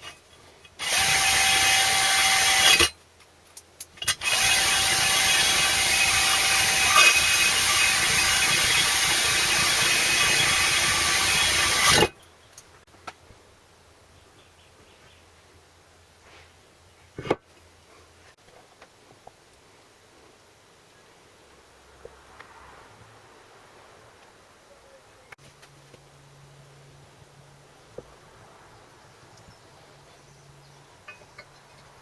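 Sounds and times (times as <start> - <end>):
power tool whining: 0.8 - 2.9, 4.0 - 12.1.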